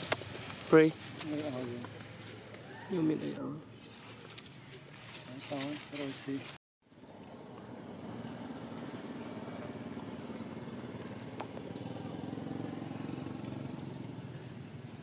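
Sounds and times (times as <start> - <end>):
engine running: 7.0 - 15.0.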